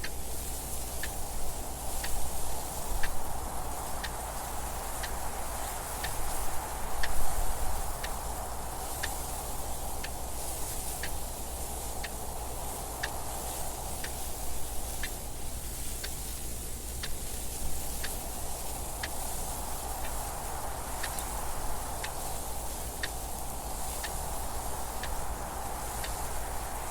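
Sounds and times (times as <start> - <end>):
wind noise: 0.0 - 26.9
clock ticking: 5.9 - 6.2, 7.0 - 9.3, 18.9 - 26.2.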